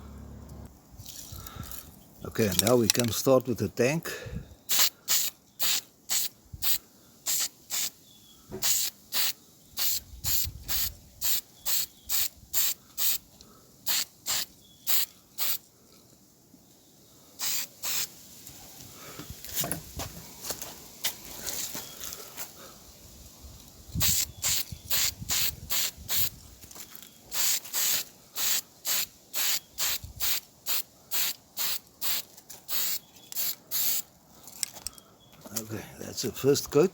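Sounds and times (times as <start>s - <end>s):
spray paint hissing: 4.7s - 8.0s, 8.6s - 15.6s, 17.4s - 18.2s, 24.0s - 26.4s, 27.3s - 34.0s.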